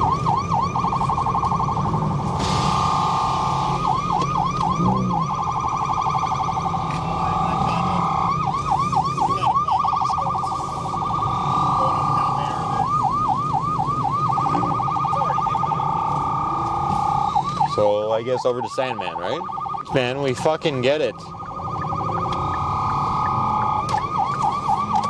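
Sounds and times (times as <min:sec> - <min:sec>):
police siren warbling: 0:00.0 - 0:25.0.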